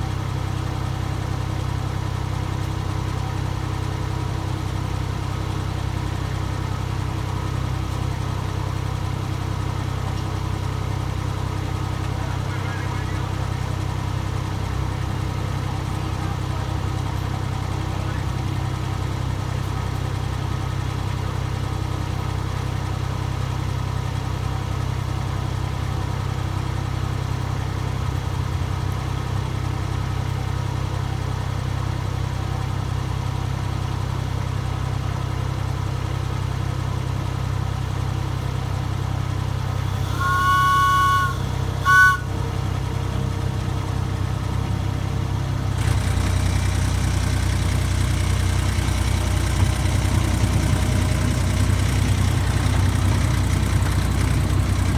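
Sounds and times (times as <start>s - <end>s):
locomotive engine idling: 0.0s - 54.9s
two-note train horn: 39.6s - 43.3s.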